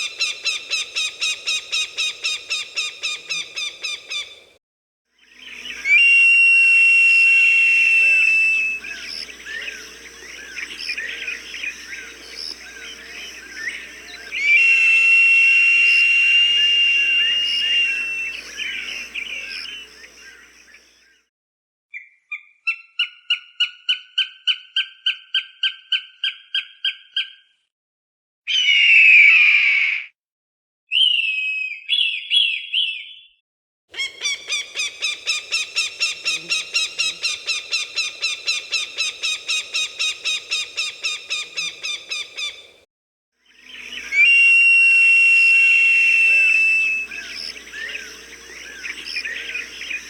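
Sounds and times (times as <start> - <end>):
hawk calls: 0.0 - 4.4, 7.8 - 20.6, 34.0 - 42.8, 43.8 - 50.0.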